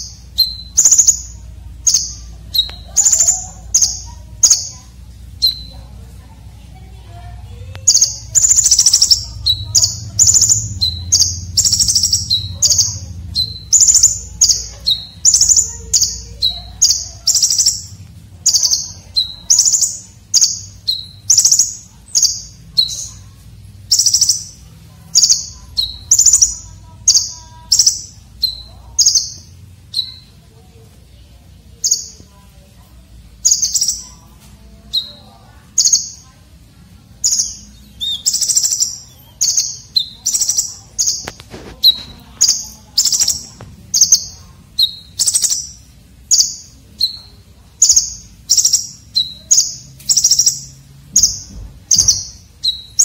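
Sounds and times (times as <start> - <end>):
bird giving scratchy calls: 37.2 - 44.1.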